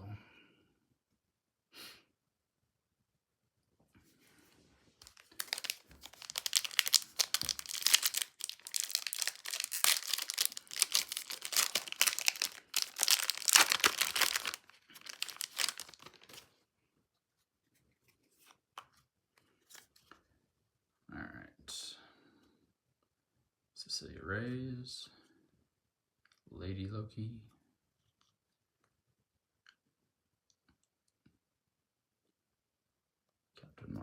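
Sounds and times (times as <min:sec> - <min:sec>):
foil wrapper tearing and crinkling: 0:05.0 - 0:16.4.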